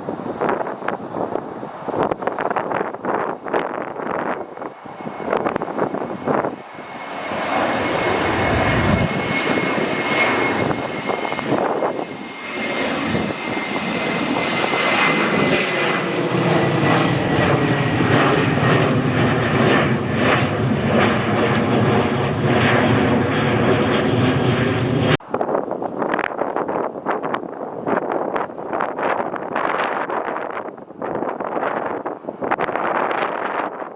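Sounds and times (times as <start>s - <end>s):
airliner engines rushing: 0.0s - 33.9s
high engine whine: 0.2s - 25.4s.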